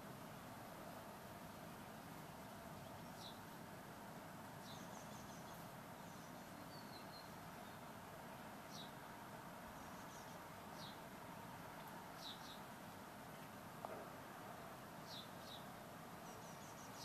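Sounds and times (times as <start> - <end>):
quiet background hiss: 0.0 - 17.0
faint bird chirps: 2.8 - 3.6, 4.6 - 7.9, 9.7 - 11.0, 12.2 - 12.7, 15.0 - 17.0.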